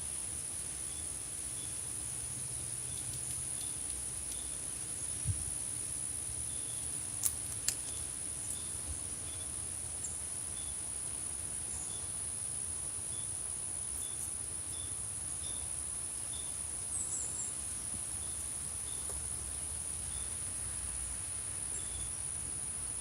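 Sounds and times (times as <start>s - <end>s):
insect trill: 0.0s - 23.0s
sharp clicks: 7.2s - 8.0s.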